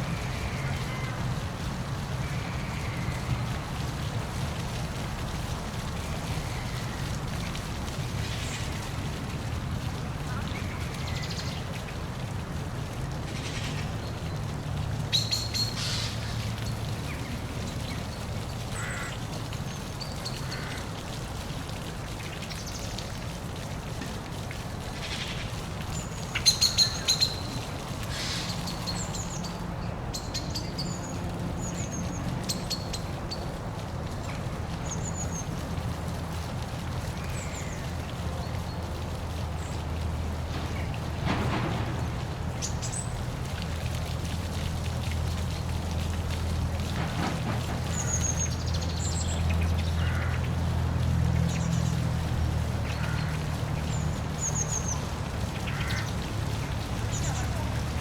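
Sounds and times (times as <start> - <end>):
waterfall rushing: 33.1 - 58.0.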